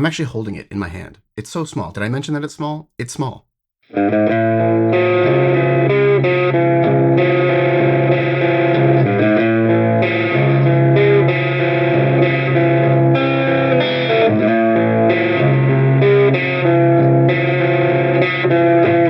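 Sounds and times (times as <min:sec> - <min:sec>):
distorted electric guitar chords: 0:03.9 - 0:19.0.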